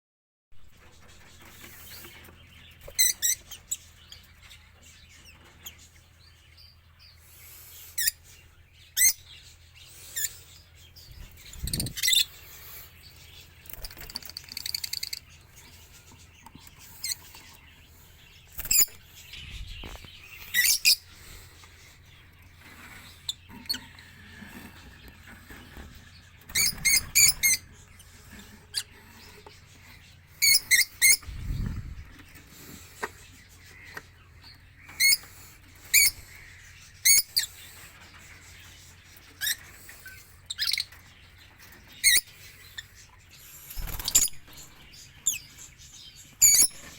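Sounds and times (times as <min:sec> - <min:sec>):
high-pitched bird chirps: 0:02.8 - 0:04.2, 0:08.9 - 0:09.5, 0:11.0 - 0:12.4, 0:18.5 - 0:21.2, 0:26.5 - 0:28.0, 0:30.4 - 0:32.0, 0:34.8 - 0:37.6, 0:39.4 - 0:41.0, 0:46.3 - 0:46.9.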